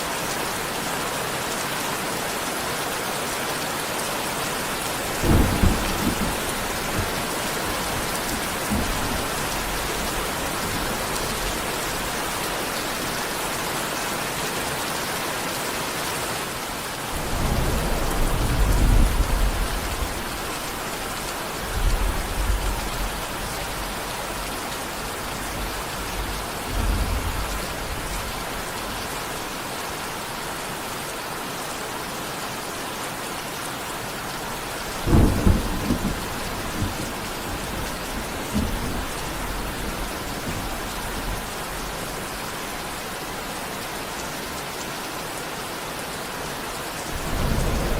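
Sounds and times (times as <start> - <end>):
heavy rain falling: 0.0 - 47.9
thunder rumbling: 4.8 - 12.3, 17.2 - 29.0, 34.6 - 42.4, 47.0 - 47.9.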